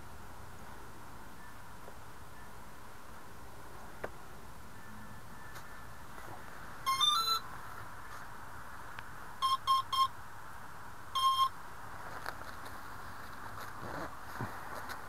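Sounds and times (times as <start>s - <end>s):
speed controller start-up beeps: 6.9s - 7.4s, 9.4s - 10.1s, 11.2s - 11.5s.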